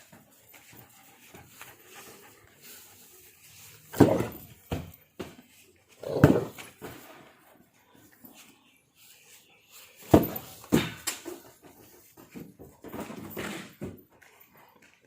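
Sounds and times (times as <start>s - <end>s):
dogs play-wrestling: 0.0s - 8.5s, 10.1s - 15.0s.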